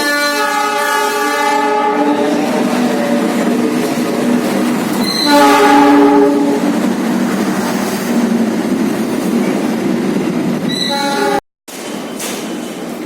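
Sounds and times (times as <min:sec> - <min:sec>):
train horn: 0:00.0 - 0:03.8, 0:05.0 - 0:06.7, 0:10.7 - 0:11.4
train rumbling past: 0:00.0 - 0:13.0.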